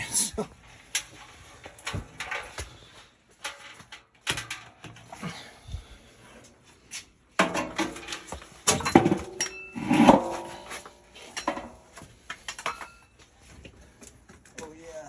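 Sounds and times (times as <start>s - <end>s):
sheet metal clanks and knocks: 7.4s - 11.8s.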